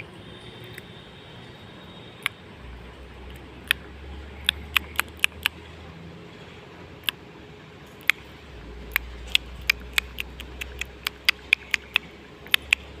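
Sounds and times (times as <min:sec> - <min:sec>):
low steady hum: 0:00.0 - 0:13.0
sharp irregular clicks: 0:03.3 - 0:05.6, 0:08.0 - 0:08.3, 0:08.9 - 0:13.0.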